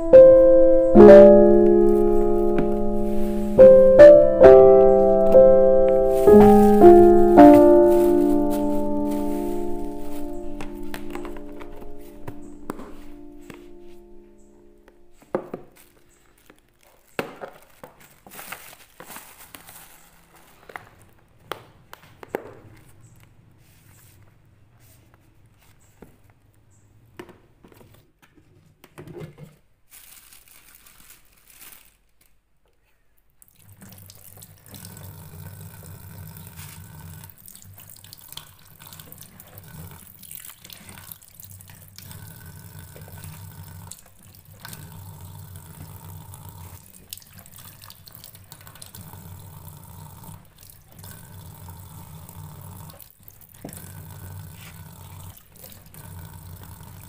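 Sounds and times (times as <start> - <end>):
tap water running into sink: 33.4 - 57.0.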